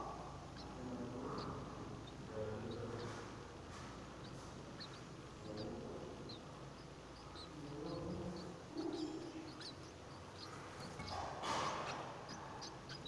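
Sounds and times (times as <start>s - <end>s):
faint high bird chirps: 0.0s - 3.2s, 4.2s - 13.0s
soft low background murmur: 0.0s - 13.0s.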